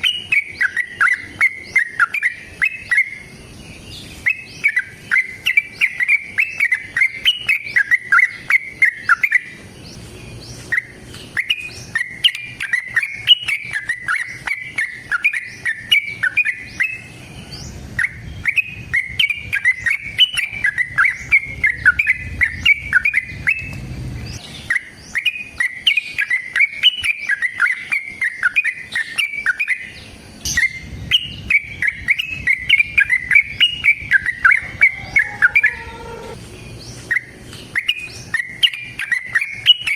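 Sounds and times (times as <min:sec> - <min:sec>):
bulbul singing chattering notes: 0:00.0 - 0:17.3, 0:24.4 - 0:36.4.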